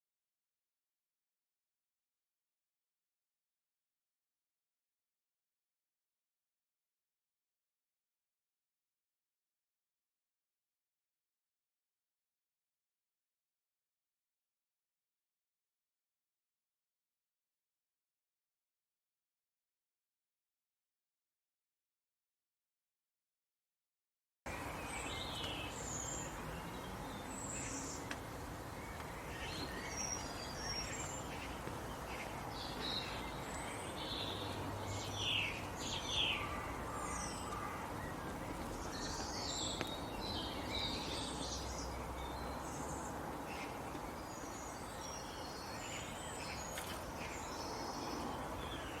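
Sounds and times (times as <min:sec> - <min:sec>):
birds chirping: 0:24.5 - 0:49.0.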